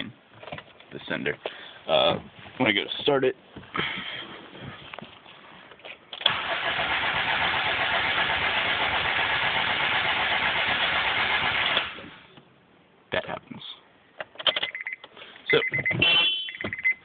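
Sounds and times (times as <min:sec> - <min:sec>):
car engine cranking: 0:06.2 - 0:12.0.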